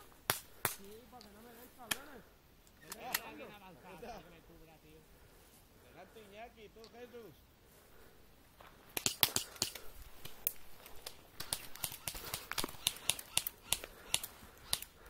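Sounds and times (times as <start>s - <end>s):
footsteps crunching on dry twigs: 7.6s - 15.0s.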